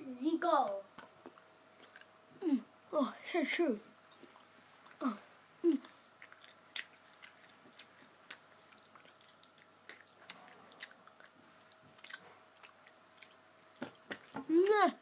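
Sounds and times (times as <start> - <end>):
person chewing candy: 1.2 - 2.2, 4.1 - 14.8.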